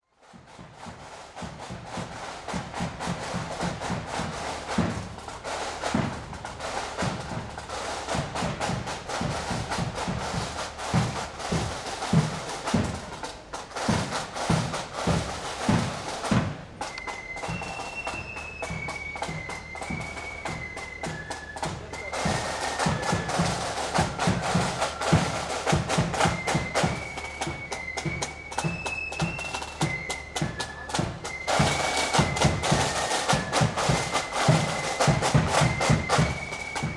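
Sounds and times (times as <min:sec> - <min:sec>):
drums beating march rhythm: 0:00.2 - 0:36.9
flutes playing high melody: 0:13.8 - 0:36.9.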